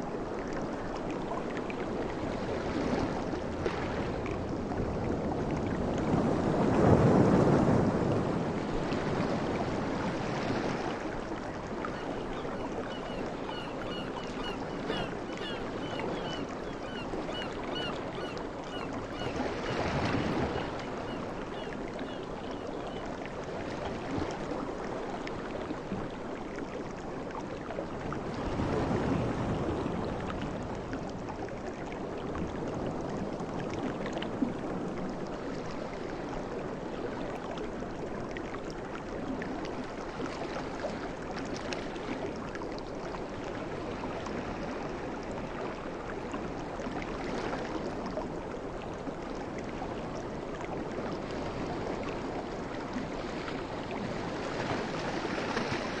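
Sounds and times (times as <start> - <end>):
sea waves washing onto shore: 0.0 - 22.4.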